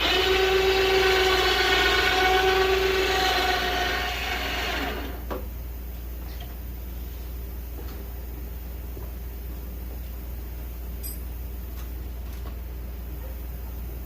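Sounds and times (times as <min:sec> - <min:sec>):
electric winch motor whining: 0:00.0 - 0:05.2.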